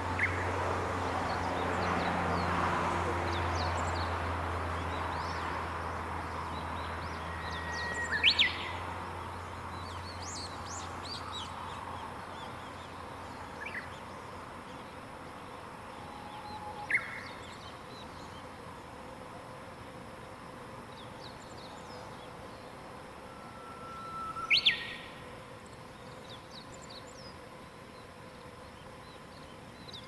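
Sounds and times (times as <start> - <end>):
birds singing and chirping: 6.5 - 8.8, 23.4 - 25.2
whistled bird call with sweep: 6.5 - 8.8, 16.0 - 17.6, 22.6 - 25.2.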